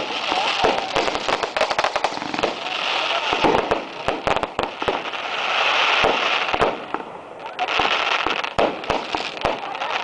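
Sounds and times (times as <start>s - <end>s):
fire hissing: 0.0s - 7.4s
bonfire crackling and popping: 0.0s - 10.0s.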